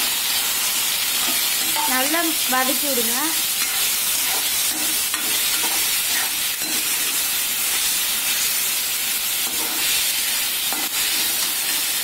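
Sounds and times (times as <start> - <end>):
vegetables sizzling in hot oil: 0.0 - 12.0
metal spatula scraping pan: 3.5 - 7.8, 9.4 - 12.0.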